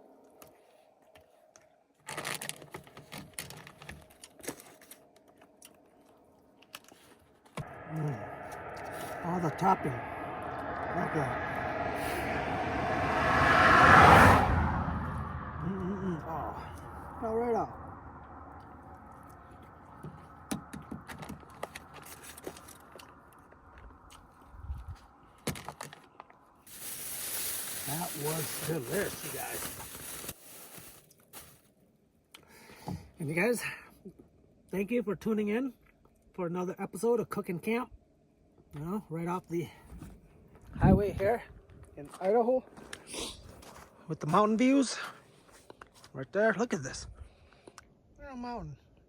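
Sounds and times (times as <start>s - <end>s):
small clicks and scrapes: 0.4s - 7.6s.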